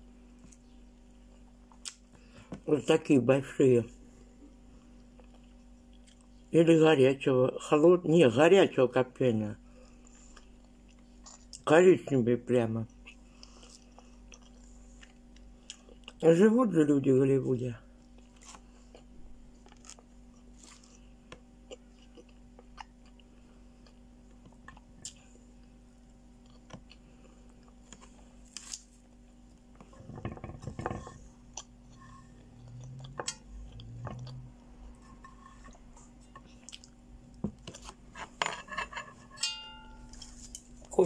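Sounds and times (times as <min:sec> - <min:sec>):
person chewing: 0:00.4 - 0:02.1, 0:04.9 - 0:06.5, 0:09.8 - 0:11.6, 0:12.9 - 0:16.2, 0:18.0 - 0:29.8, 0:31.2 - 0:37.1
closed-mouth hums: 0:31.3 - 0:35.0.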